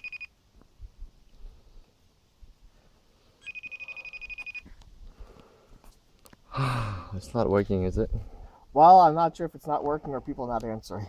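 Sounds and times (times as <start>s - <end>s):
phone ringing tone: 0.0s - 0.3s, 3.4s - 4.7s.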